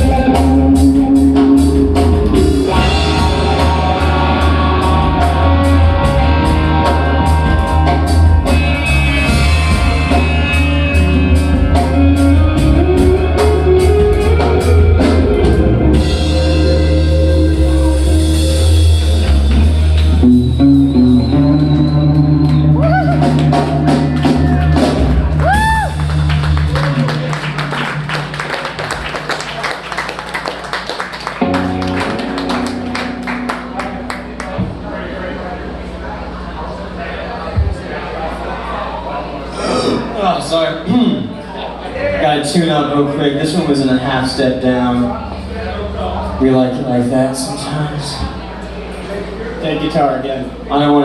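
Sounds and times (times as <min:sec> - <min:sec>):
rock band playing live: 0:00.0 - 0:34.9.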